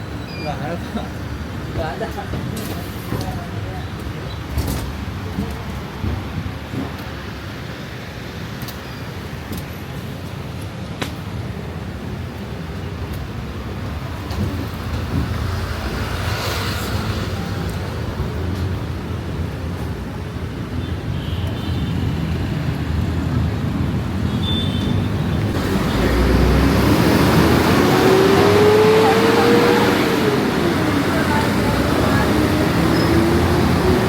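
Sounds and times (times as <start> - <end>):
road traffic noise: 0.0 - 34.0
vehicle passing close: 25.5 - 34.0.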